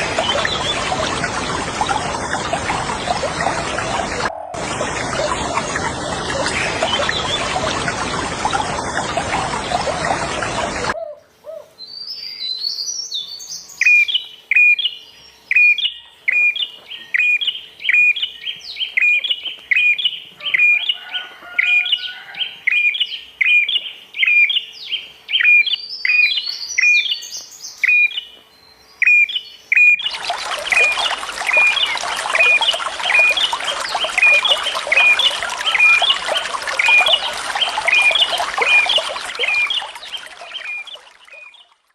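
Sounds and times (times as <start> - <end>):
rushing water: 0.0 - 11.0, 30.0 - 41.9.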